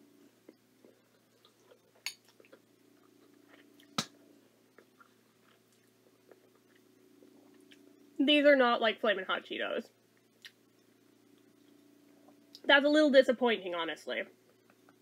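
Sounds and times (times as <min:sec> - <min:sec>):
faint steady hum: 0:00.0 - 0:15.0
quiet chewing: 0:00.2 - 0:04.0, 0:04.7 - 0:08.0.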